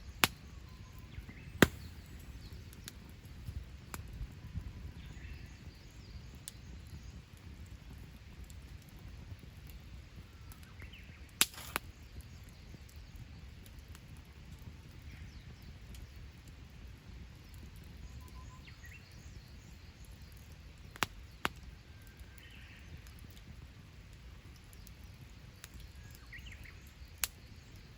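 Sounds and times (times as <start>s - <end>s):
fire hiss: 0.0s - 4.3s, 10.6s - 12.4s
campfire wood popping: 0.0s - 27.9s.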